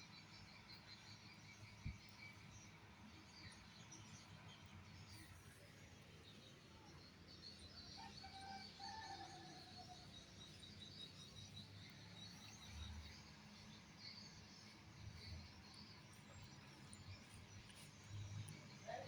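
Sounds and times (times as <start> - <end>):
small birds chirping: 9.0 - 19.0.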